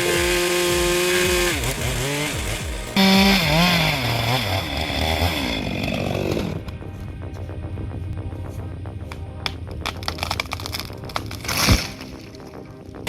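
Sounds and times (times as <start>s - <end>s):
chainsaw revving while cutting: 0.0s - 6.6s.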